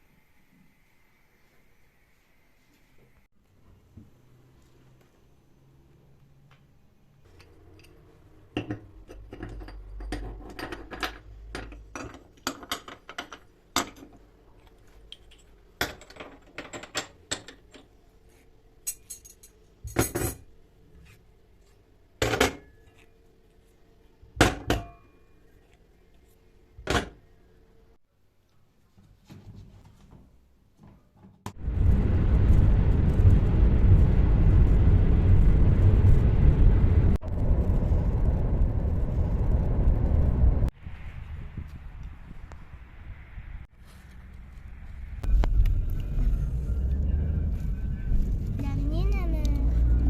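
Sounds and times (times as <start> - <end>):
low rumble: 31.5 - 43.7, 44.4 - 50.0.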